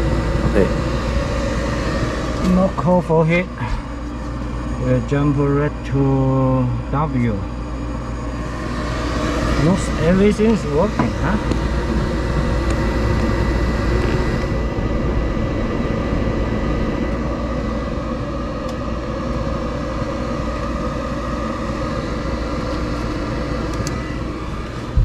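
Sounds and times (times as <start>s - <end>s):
gas furnace running hum: 0.0s - 25.0s.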